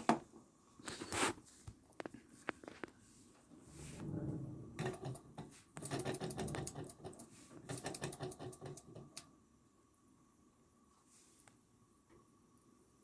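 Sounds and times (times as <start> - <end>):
low rumble: 3.7 - 4.8
model steam engine clattering: 4.8 - 9.2.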